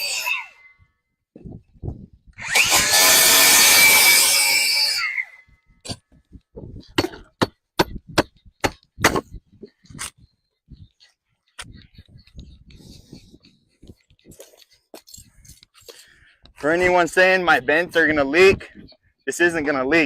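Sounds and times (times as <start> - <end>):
power saw cutting wood: 0.0 - 0.6, 2.4 - 5.3.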